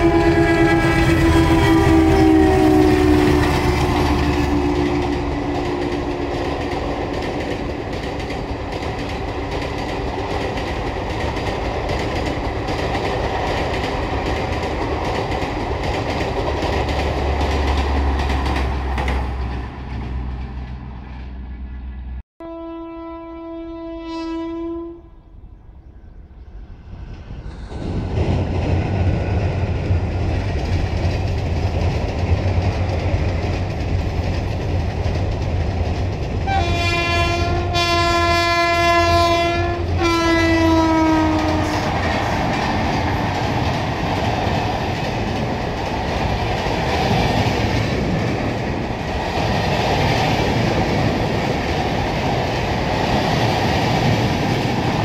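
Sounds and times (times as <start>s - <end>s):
locomotive horn chord: 0.0s - 6.4s, 22.4s - 25.4s, 36.5s - 42.0s
train rumble and wheel clatter: 0.0s - 22.2s, 25.4s - 55.0s
coaches clattering over bridge: 0.1s - 20.8s, 27.7s - 37.8s, 39.7s - 55.0s.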